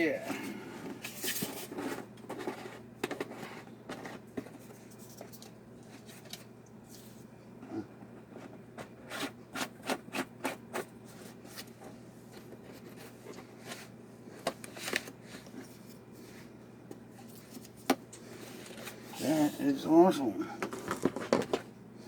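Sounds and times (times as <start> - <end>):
faint steady hum: 0.0 - 22.0
rubbing and scraping of parts: 0.3 - 7.2.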